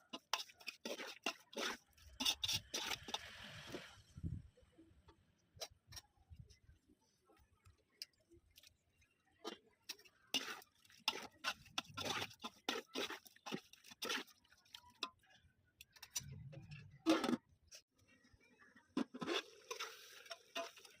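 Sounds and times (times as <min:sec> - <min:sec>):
cooking utensils clicking and scraping: 0:00.0 - 0:03.9, 0:07.7 - 0:17.8, 0:18.9 - 0:21.0.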